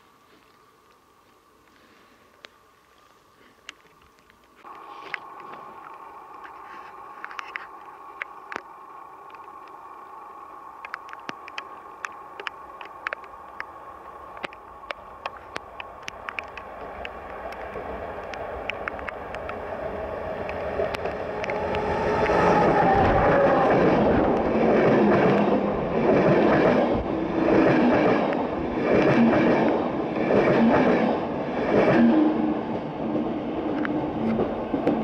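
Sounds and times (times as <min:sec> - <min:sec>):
diesel locomotive passing: 0:04.6 - 0:35.0
sharp clicks: 0:10.8 - 0:13.7, 0:14.3 - 0:19.6.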